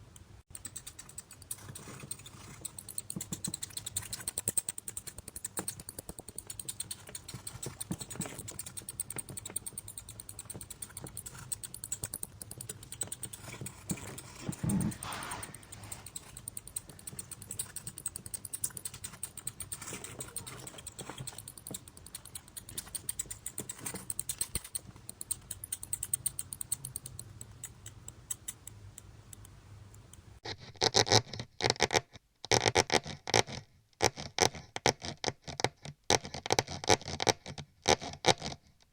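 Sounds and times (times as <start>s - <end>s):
mouse scurrying and scratching: 0.5s - 30.1s.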